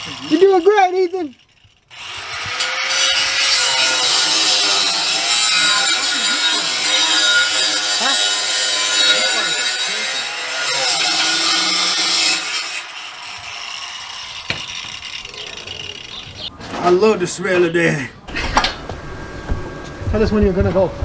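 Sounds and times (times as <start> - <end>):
power tool grinding metal pipe: 0.0 - 16.2.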